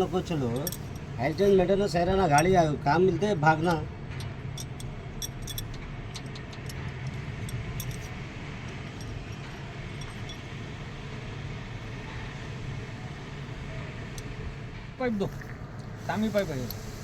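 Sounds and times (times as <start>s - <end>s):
low mechanical hum: 0.0s - 17.0s
metallic clinks of tools: 0.5s - 1.1s, 4.2s - 10.6s.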